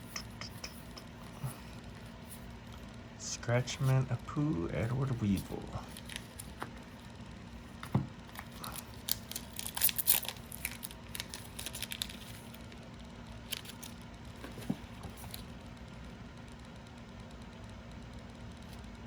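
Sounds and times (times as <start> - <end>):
foil pack crinkling and tearing: 5.2 - 7.0, 8.3 - 12.8, 13.4 - 15.6.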